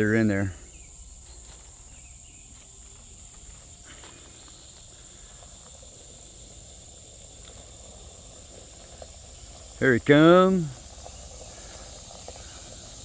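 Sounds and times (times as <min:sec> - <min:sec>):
crickets buzzing: 0:00.0 - 0:13.0.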